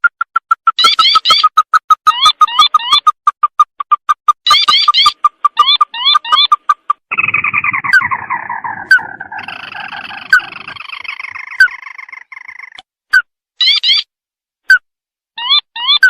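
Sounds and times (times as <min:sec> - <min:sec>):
crake calls: 0:00.0 - 0:12.8.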